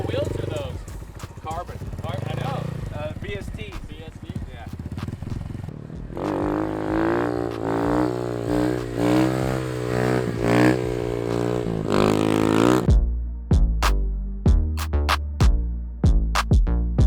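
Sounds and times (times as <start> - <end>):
motorcycle engine revving: 0.0 - 13.0
electronic music with drum beat: 0.0 - 17.0.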